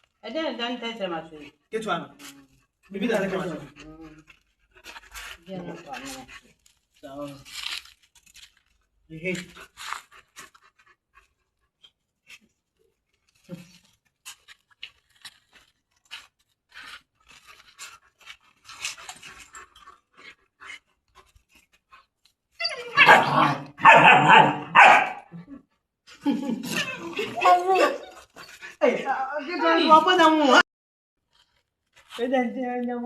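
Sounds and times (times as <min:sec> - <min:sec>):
faint clicks and rustles: 0:01.4 - 0:22.6, 0:31.2 - 0:33.0
dog barking: 0:22.9 - 0:25.3.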